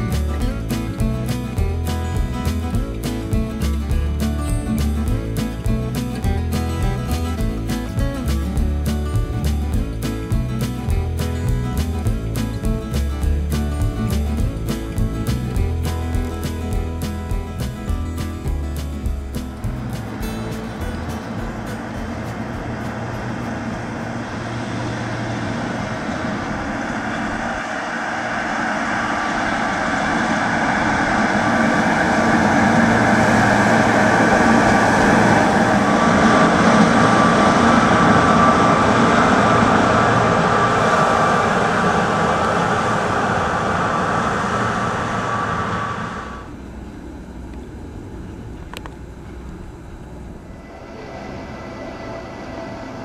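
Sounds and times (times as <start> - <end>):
electric train passing: 0.0 - 53.0
motor whine: 11.6 - 53.0.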